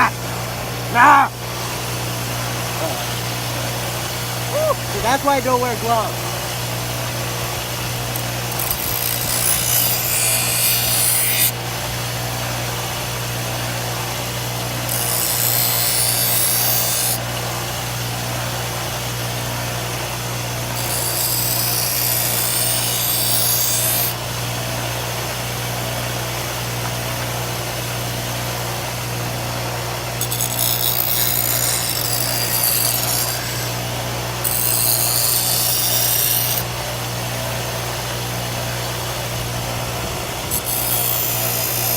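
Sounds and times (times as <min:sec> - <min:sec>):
electric grinder motor hum: 0:04.4 - 0:11.6, 0:14.6 - 0:17.2, 0:20.7 - 0:24.2, 0:30.2 - 0:36.8, 0:39.3 - 0:41.9
grinder disc grinding metal: 0:07.8 - 0:11.6, 0:14.8 - 0:17.2, 0:20.7 - 0:24.2, 0:30.2 - 0:36.7, 0:39.8 - 0:41.9.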